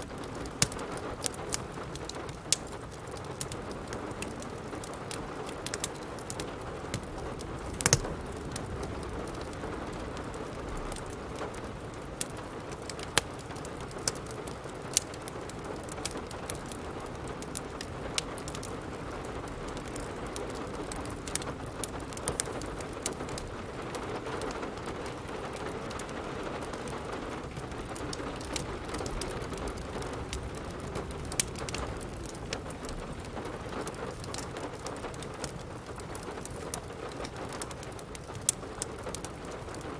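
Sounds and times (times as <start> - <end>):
steady rain: 0.0 - 39.9
wood fire crackling and popping: 0.0 - 39.9.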